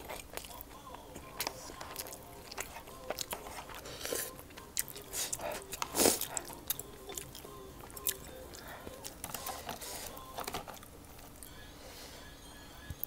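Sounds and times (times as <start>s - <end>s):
person biting and chewing food: 0.0s - 11.5s.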